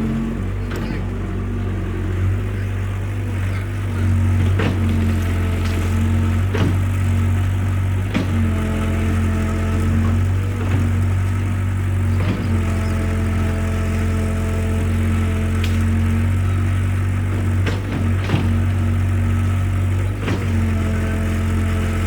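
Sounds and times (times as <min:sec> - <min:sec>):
excavator diesel engine droning: 0:00.0 - 0:22.0
sharp knocks: 0:04.0 - 0:11.2, 0:12.0 - 0:12.8, 0:17.3 - 0:18.8.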